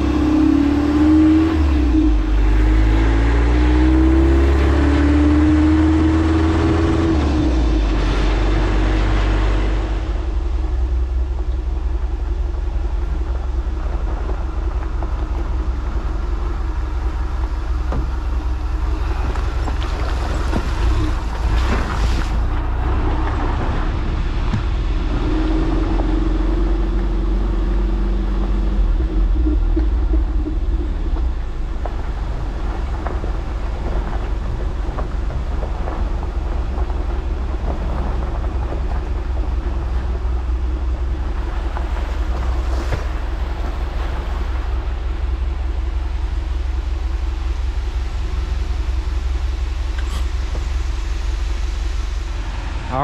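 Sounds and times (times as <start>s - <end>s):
vehicle engine and road rumble: 0.0s - 53.0s
steady hum: 24.4s - 53.0s.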